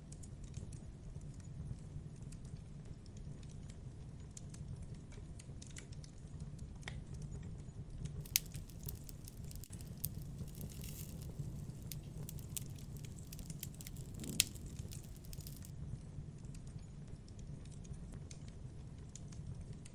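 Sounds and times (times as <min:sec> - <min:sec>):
wood fire crackling and popping: 0:08.2 - 0:15.7.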